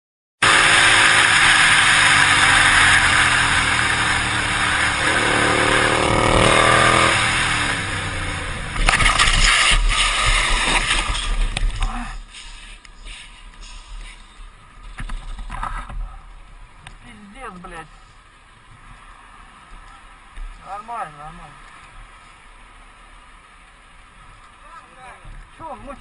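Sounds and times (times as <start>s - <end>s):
engine revving: 0.4s - 11.0s
traffic road noise: 0.4s - 26.0s.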